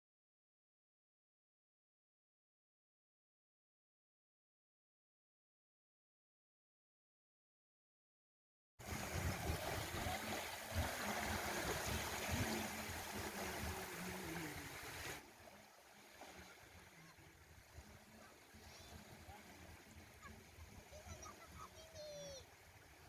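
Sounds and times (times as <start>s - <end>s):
wind buffeting the microphone: 8.8s - 13.9s.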